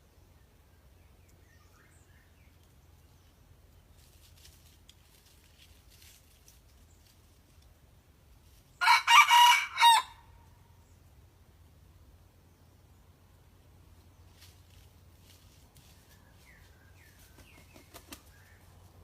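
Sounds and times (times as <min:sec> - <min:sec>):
young cockerel crowing: 0:08.8 - 0:10.4.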